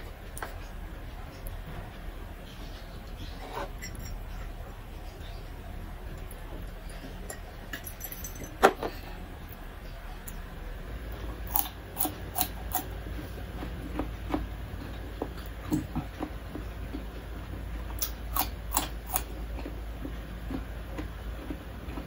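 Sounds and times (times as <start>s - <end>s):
crisp crunchy chewing: 11.4s - 22.0s.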